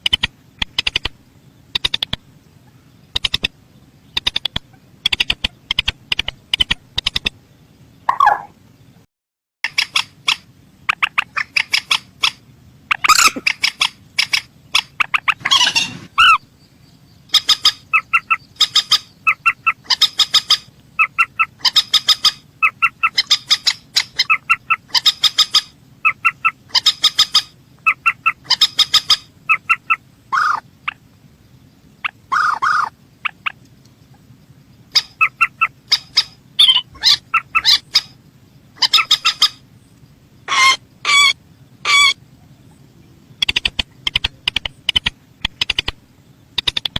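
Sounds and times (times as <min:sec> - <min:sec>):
rail bird calling in sharp notes: 0:08.1 - 0:08.5, 0:09.7 - 0:16.6, 0:17.3 - 0:31.0, 0:32.0 - 0:38.2, 0:38.8 - 0:39.7, 0:40.4 - 0:46.9.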